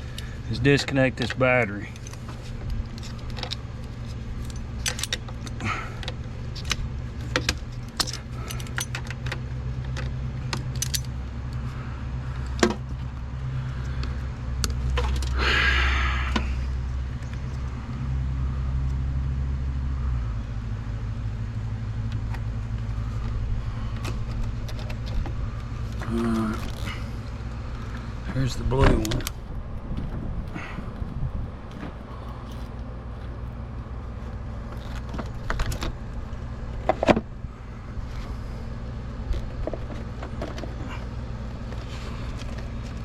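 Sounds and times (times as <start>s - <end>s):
steady low hum: 0.0s - 43.0s
hand tools clinking on metal: 10.7s - 11.1s.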